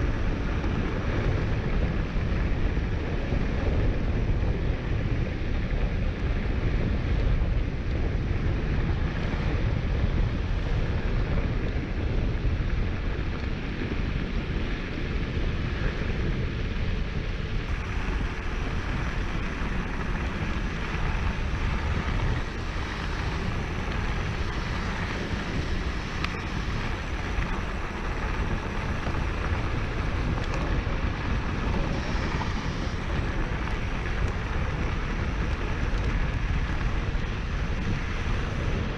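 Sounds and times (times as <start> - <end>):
wind buffeting microphone: 0.0 - 38.9
tyres rolling over dirt: 17.7 - 38.9.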